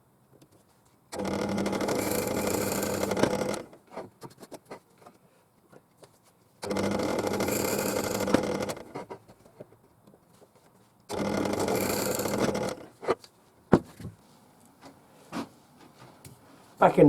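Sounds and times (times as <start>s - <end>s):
bench drill boring into wood: 1.1s - 3.8s, 6.6s - 9.0s, 11.1s - 12.9s.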